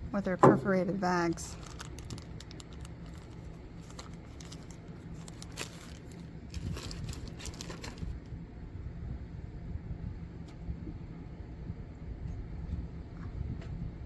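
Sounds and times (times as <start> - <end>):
low steady rumble: 0.0 - 14.0
plastic bag crinkling: 1.0 - 8.2.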